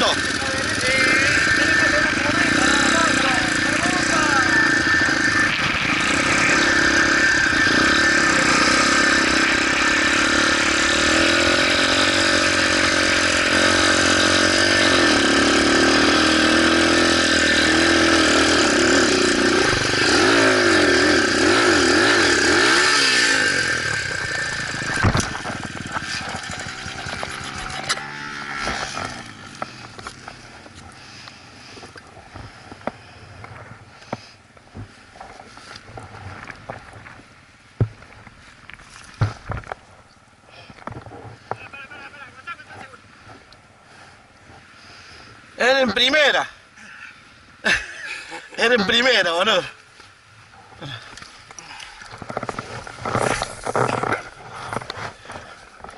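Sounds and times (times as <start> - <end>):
motorcycle engine revving: 0.0 - 31.8, 51.7 - 55.9.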